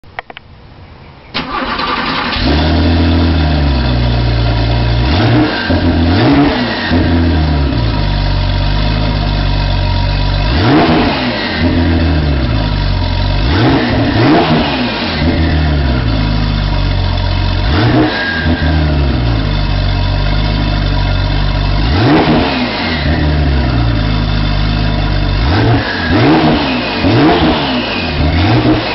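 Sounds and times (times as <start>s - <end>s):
car engine starting and idling: 1.3s - 28.9s
engine revs blipped: 1.4s - 28.9s.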